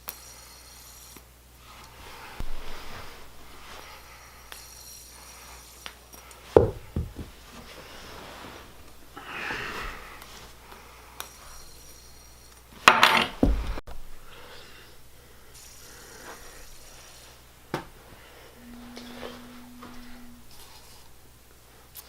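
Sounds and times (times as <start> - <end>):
soft rustle: 1.6 - 6.1
hard objects knocking and clattering: 6.6 - 7.4.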